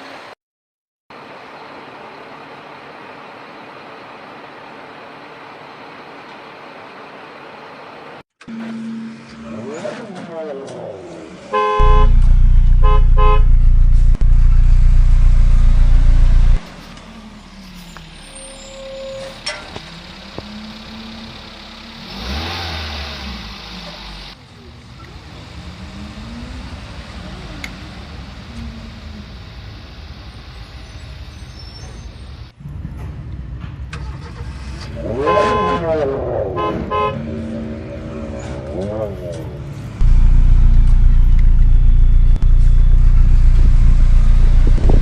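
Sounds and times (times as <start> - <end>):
traffic vehicle noise: 1.1 - 45.0
loud low engine rumble: 11.5 - 45.0.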